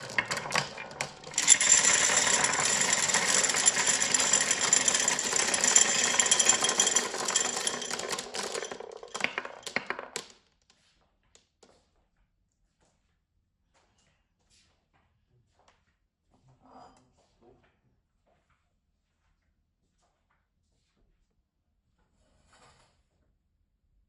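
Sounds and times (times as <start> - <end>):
marbles clattering down a track: 0.0 - 10.3.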